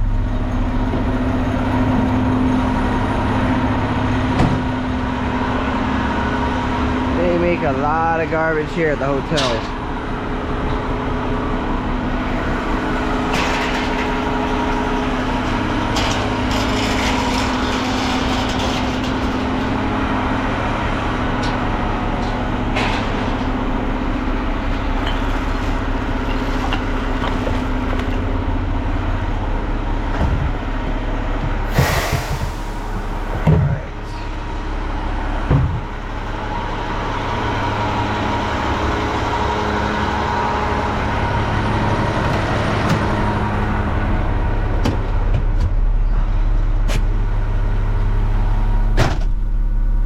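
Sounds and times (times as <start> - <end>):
garbage truck diesel engine running: 0.0 - 50.0
short loud burst of noise: 31.7 - 33.0.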